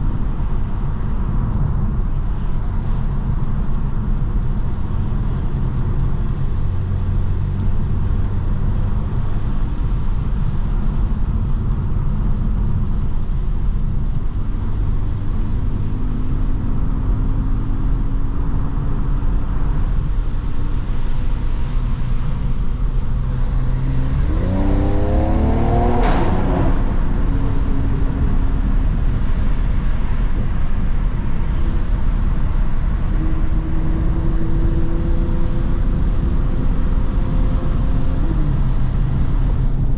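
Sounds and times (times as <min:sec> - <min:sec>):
car engine and exhaust: 0:00.0 - 0:39.9
exhaust crack: 0:22.2 - 0:33.2.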